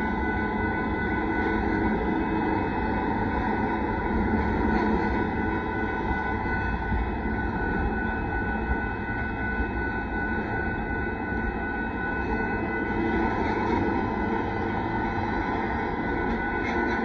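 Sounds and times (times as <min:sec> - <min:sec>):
thin steady high tones: 0:00.0 - 0:17.0
train wheels rumbling on rail: 0:00.0 - 0:17.0.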